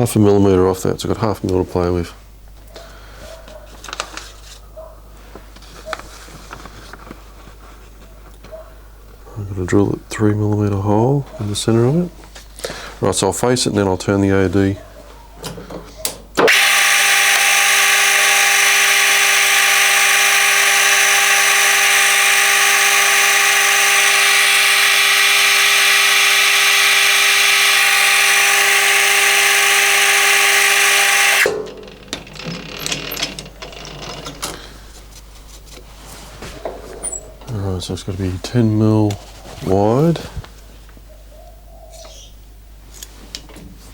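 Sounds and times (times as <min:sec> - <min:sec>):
metal lathe motor whine: 0:16.4 - 0:34.4.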